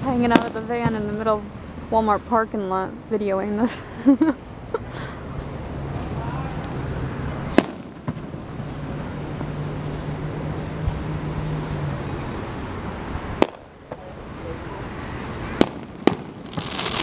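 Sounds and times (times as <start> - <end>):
fireworks bangs: 0.0 - 2.2, 7.4 - 9.8, 13.3 - 17.0.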